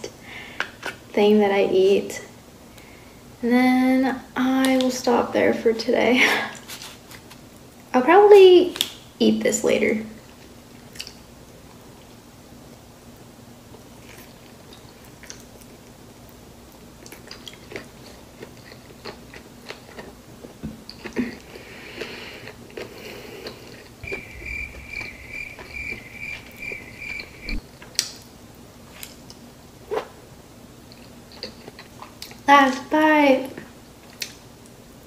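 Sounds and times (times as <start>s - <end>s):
chewing and mouth sounds: 16.7s - 24.8s, 30.9s - 32.4s
pulsing high tone: 24.0s - 27.6s.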